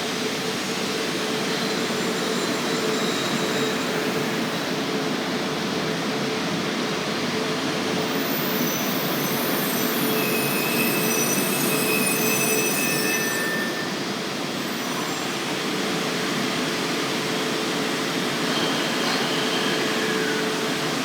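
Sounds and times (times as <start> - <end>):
faint high squealing: 1.7 - 4.5, 8.1 - 14.0.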